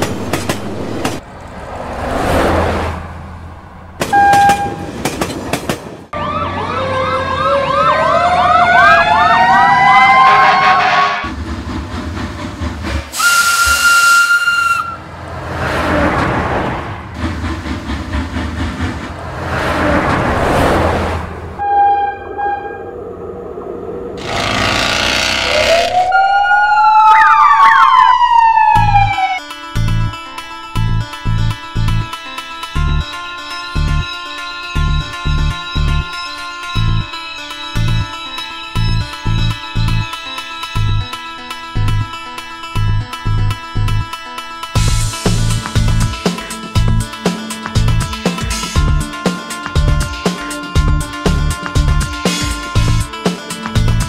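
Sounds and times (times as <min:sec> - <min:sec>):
trains rushing past: 0:00.0 - 0:06.1, 0:08.6 - 0:26.2, 0:44.8 - 0:53.9
steam locomotive whistle: 0:04.1 - 0:04.9, 0:06.9 - 0:11.3, 0:13.1 - 0:15.1, 0:21.6 - 0:23.0
wavering siren-like wails: 0:06.1 - 0:11.2, 0:21.6 - 0:29.4.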